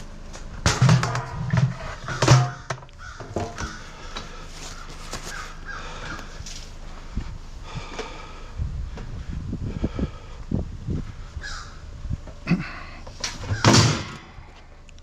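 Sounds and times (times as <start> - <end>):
crow cawing: 2.4 - 6.4, 11.4 - 11.8.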